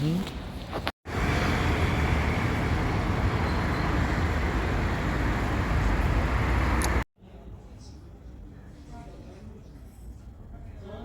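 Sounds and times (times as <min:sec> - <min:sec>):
vehicle low rumble: 0:00.0 - 0:07.1.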